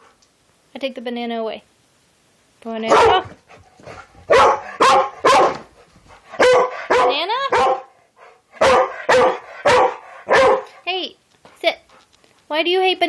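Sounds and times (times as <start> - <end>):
dog barking sharply: 2.9 - 3.4, 4.3 - 5.7, 6.3 - 7.9, 8.6 - 10.8.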